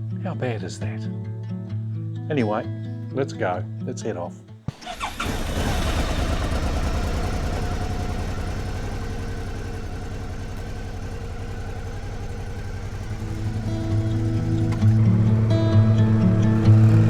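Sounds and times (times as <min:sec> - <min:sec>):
motorcycle engine idling: 0:04.7 - 0:17.0.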